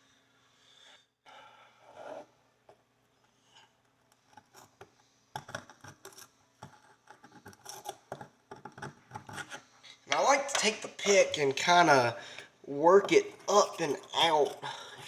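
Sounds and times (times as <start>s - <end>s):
pick scraping a horseshoe: 13.0s - 15.0s.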